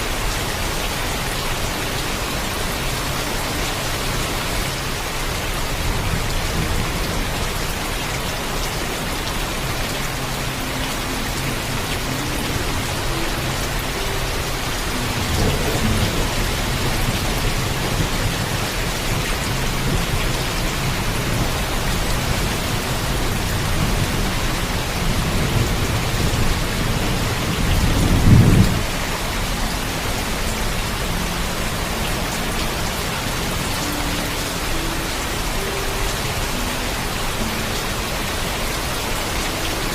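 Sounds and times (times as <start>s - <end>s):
heavy rain falling: 0.0s - 39.9s
thunder rumbling: 14.4s - 29.3s.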